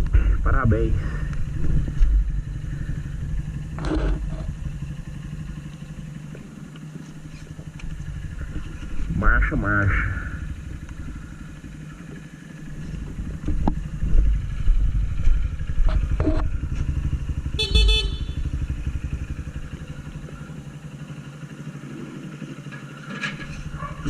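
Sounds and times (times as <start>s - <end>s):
motorcycle engine running: 0.0s - 24.0s
horn beep: 17.5s - 18.5s.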